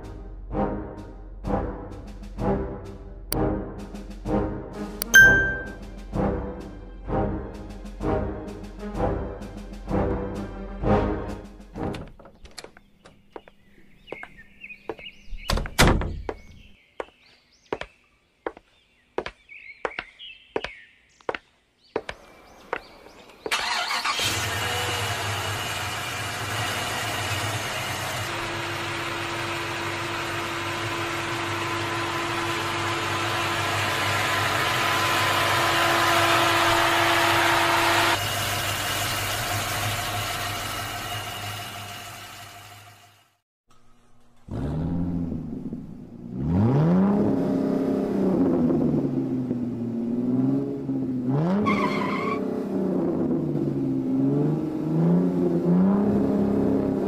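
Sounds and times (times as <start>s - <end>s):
car engine sound effect: 23.5s - 43.2s, 44.4s - 57.0s.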